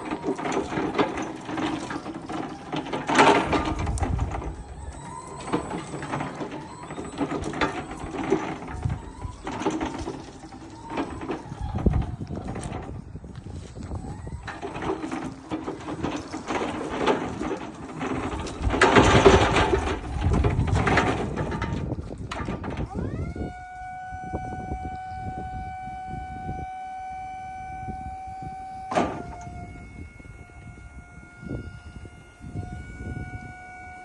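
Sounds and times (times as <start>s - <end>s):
pallet stacker clattering and knocking: 0.0s - 13.0s, 14.0s - 23.0s, 28.9s - 29.5s
hydraulic pump motor whine: 0.0s - 34.0s.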